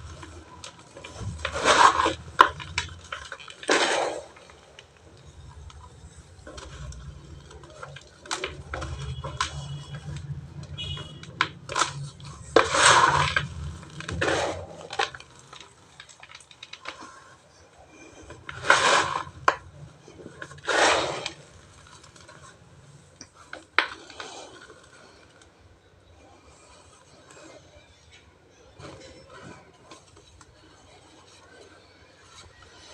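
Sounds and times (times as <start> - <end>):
cement chunks crumbling and crunching: 0.0 - 22.6, 23.2 - 25.6.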